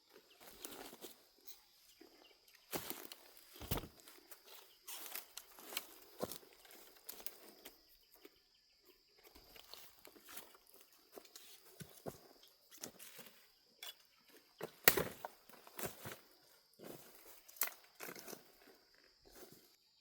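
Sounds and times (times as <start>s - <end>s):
dry leaves and twigs rustling: 0.0s - 8.4s, 9.0s - 19.8s.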